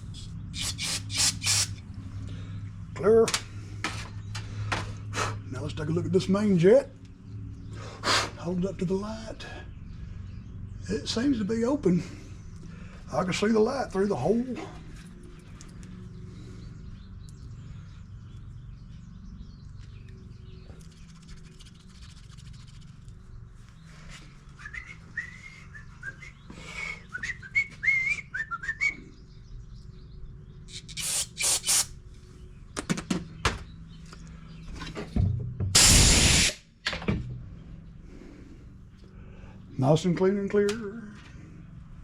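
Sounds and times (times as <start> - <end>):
compressed air hissing blasts: 0.0 - 1.8, 30.7 - 31.9, 35.8 - 36.6
man whistling a tune: 24.6 - 29.0.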